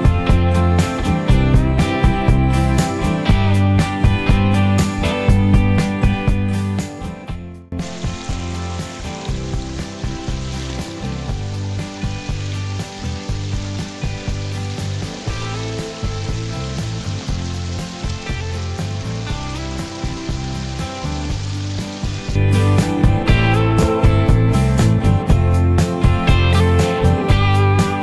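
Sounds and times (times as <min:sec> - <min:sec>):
guitar background music: 0:00.0 - 0:28.0
rain falling: 0:07.8 - 0:28.0.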